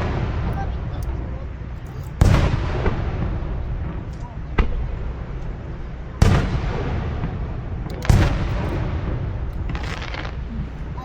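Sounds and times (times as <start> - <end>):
fireworks booming: 0.0 - 11.0
fireworks hissing burst: 2.2 - 11.0.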